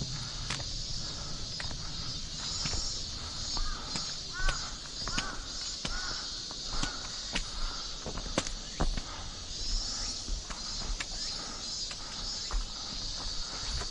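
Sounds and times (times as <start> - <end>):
footsteps on trail: 0.0 - 13.9
high-pitched insect drone: 0.0 - 13.9
crow cawing: 1.0 - 8.4.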